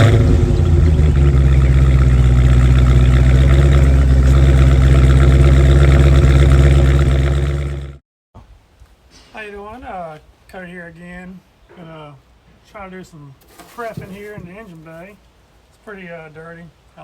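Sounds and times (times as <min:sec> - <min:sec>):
vehicle engine idling: 0:00.0 - 0:08.0.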